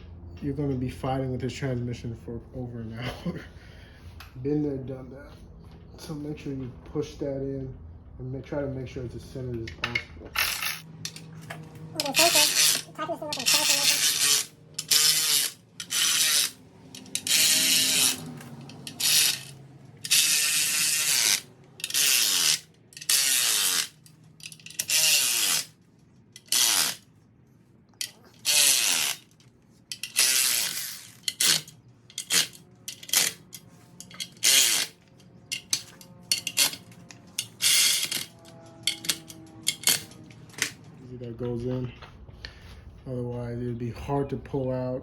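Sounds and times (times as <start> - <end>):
ratchet wrench clicking: 12.0 - 25.7, 26.4 - 27.0, 28.0 - 40.8.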